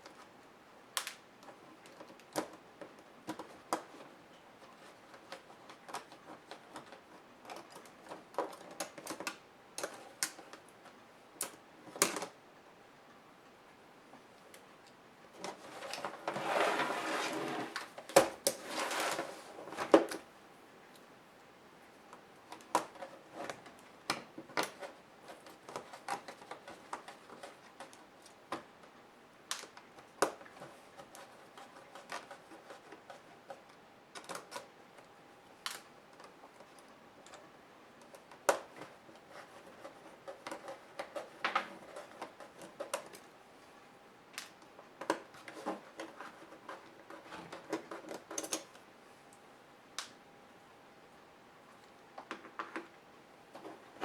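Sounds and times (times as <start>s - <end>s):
scraping sounds: 15.7s - 17.8s, 18.6s - 19.8s.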